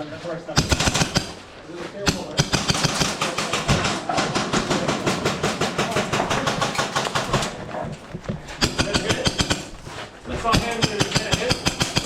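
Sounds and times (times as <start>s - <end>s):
airsoft guns firing full-auto: 0.6s - 1.5s, 2.1s - 7.7s, 8.6s - 9.8s, 10.6s - 12.0s.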